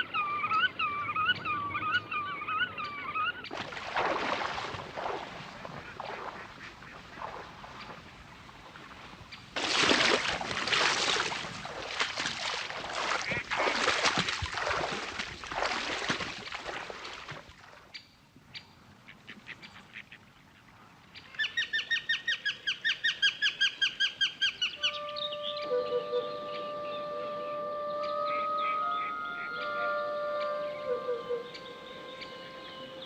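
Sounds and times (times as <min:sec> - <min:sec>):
ducks and geese calling: 0:00.0 - 0:08.2, 0:09.6 - 0:16.2, 0:24.5 - 0:33.0.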